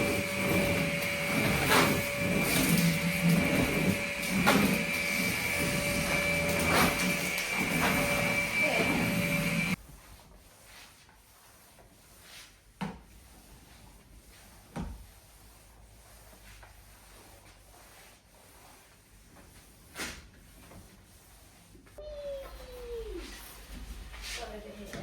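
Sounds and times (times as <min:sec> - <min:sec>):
loud steady whirring: 0:00.0 - 0:09.8
objects rubbing: 0:00.0 - 0:09.8, 0:20.6 - 0:25.0.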